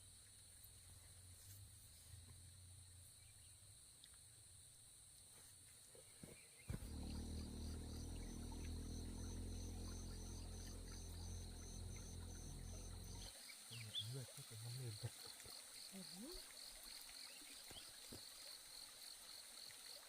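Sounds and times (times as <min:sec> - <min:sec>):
high drone of insects: 0:06.6 - 0:20.0
pulsed chirp: 0:06.7 - 0:13.3
steady low rumble: 0:06.7 - 0:13.3.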